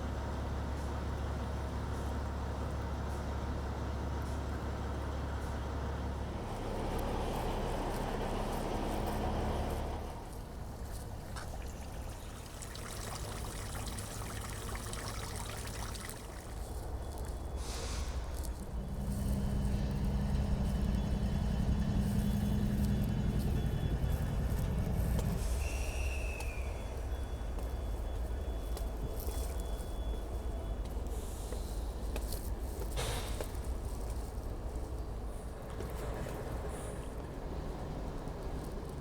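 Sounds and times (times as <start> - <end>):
vehicle engine hum: 0.0 - 39.0
water trickling: 10.6 - 17.5.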